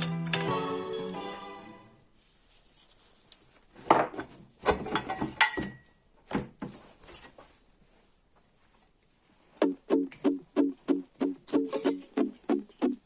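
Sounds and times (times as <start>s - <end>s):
tools and metal parts clattering: 4.6s - 6.0s.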